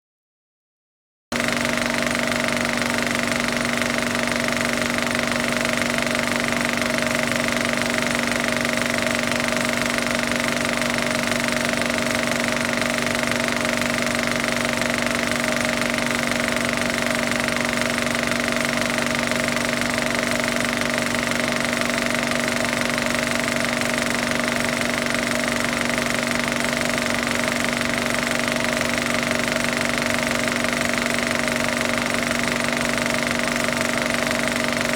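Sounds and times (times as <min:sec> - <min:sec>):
film projector running: 0:01.3 - 0:34.9.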